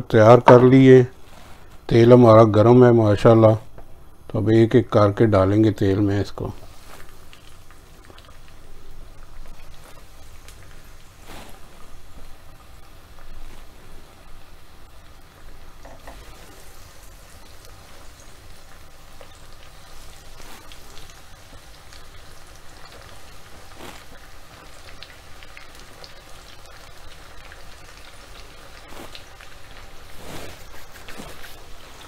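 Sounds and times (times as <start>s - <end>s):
deep-frying in hot oil: 0.0s - 32.0s.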